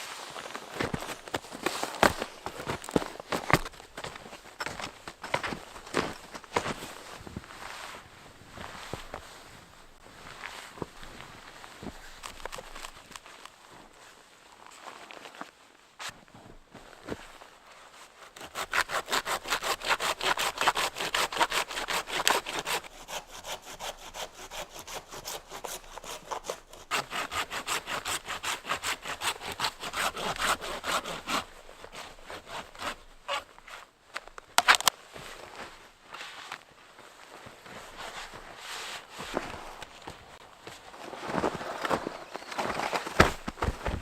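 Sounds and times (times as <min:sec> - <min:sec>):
hand saw cutting wood: 0:18.4 - 0:33.8.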